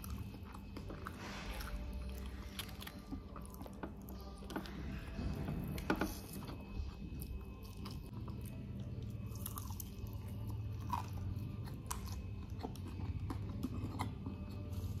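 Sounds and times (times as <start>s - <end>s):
person chewing with crunches: 0.0s - 15.0s.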